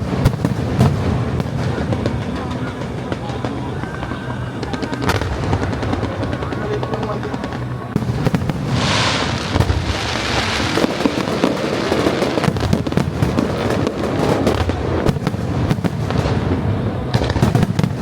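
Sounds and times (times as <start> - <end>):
fireworks bangs and crackles: 0.0 - 18.0
hissing crackle: 0.0 - 18.0.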